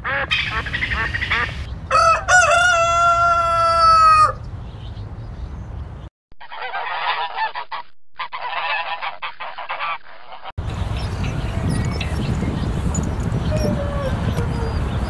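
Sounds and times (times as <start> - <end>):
chicken calling: 0.1 - 4.4.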